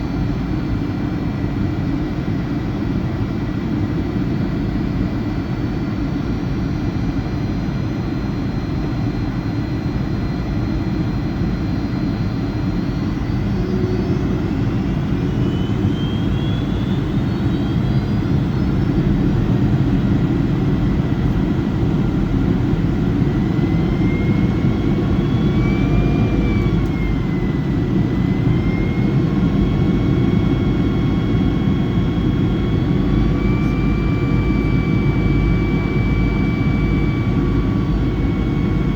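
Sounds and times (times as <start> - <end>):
jet engine roar and whine: 0.0 - 38.9.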